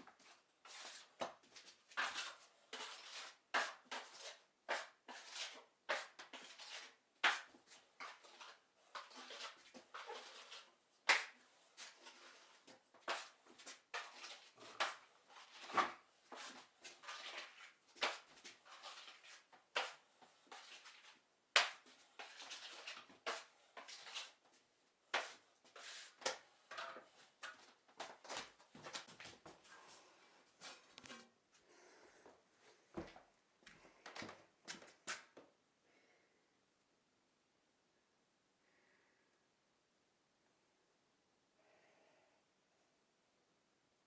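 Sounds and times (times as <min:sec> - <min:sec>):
rustling and scraping: 0:21.8 - 0:31.6.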